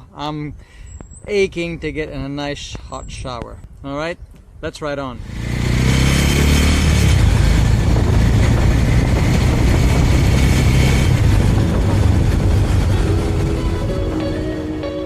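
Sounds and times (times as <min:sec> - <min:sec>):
wind rush on microphone: 0:01.1 - 0:15.0
motorcycle engine running: 0:05.2 - 0:15.0.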